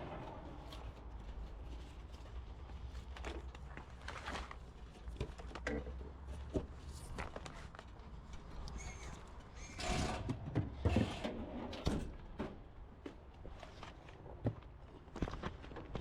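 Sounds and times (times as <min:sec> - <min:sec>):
scraping rustling noises: 0:00.0 - 0:05.6.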